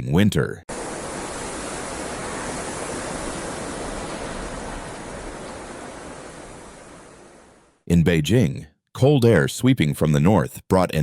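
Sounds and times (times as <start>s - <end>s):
steady rushing noise: 0.7s - 7.8s.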